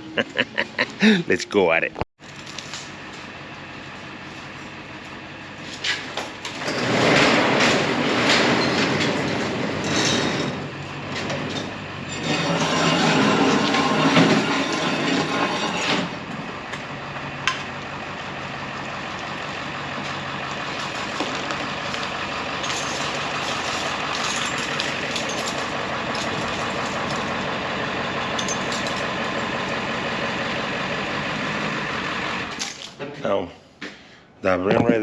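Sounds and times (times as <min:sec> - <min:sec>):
vehicle engine running: 0:16.1 - 0:32.6.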